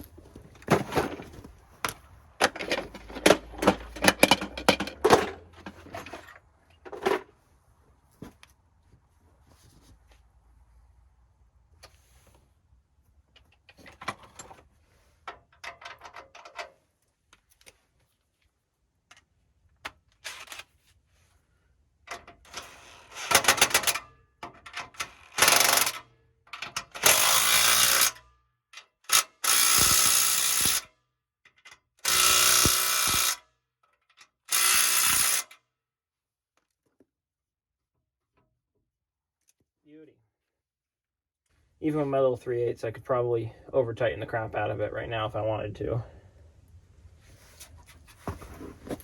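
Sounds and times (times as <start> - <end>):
tools clicking and clanking: 0.6 - 7.3, 15.2 - 16.8, 22.1 - 28.2
power tool running in bursts: 29.5 - 30.8, 32.1 - 33.4, 34.5 - 35.4.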